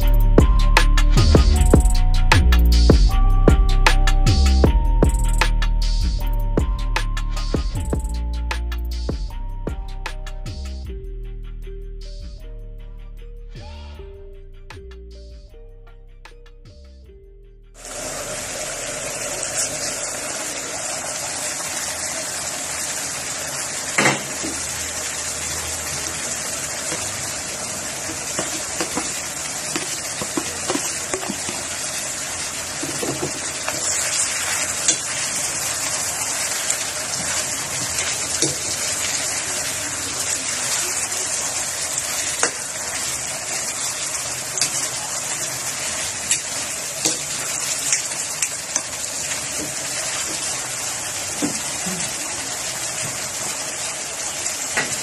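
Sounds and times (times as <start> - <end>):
food sizzling in a pan: 17.8 - 55.0.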